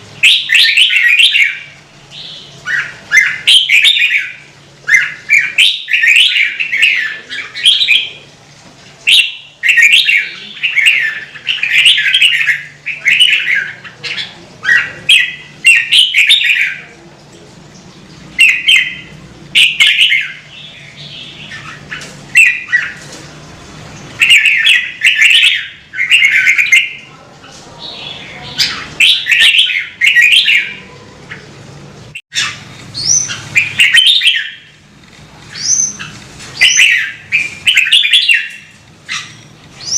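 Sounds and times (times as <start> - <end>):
bulbul warbling song: 32.3 - 34.8, 35.5 - 39.9.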